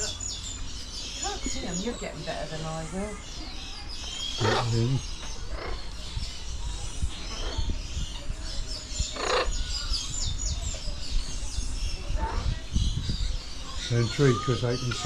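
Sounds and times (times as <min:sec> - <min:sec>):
birds chirping and whistling: 0:00.0 - 0:15.0
harsh bird call: 0:03.8 - 0:05.9.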